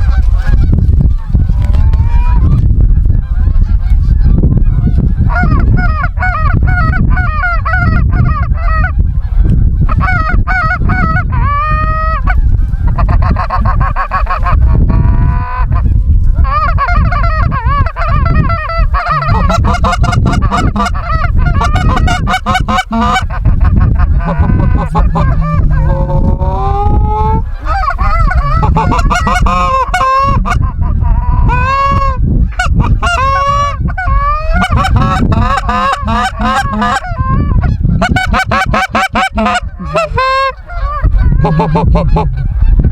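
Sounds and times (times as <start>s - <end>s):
geese honking: 9.8s - 42.9s.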